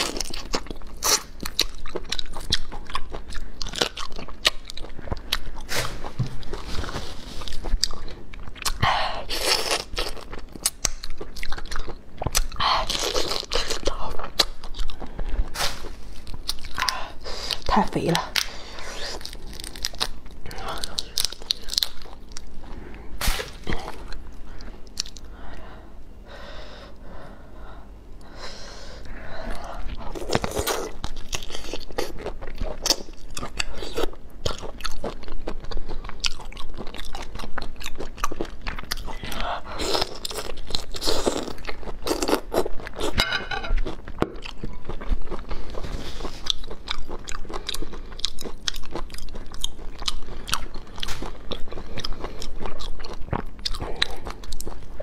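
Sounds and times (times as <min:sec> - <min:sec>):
wet chewing: 0:29.5 - 0:55.0.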